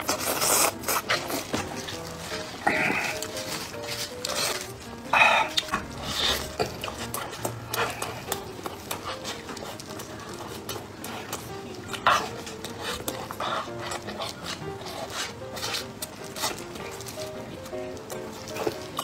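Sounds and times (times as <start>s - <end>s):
food handling clicks and rustles: 0.0s - 19.0s
man chewing bread: 0.0s - 19.0s
wet mouth smacking: 5.4s - 9.8s.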